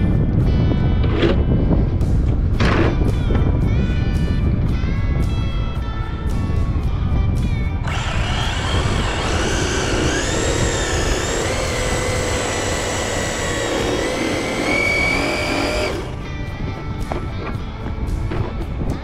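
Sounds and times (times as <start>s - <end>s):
rc car electric motor whining: 7.8s - 16.2s.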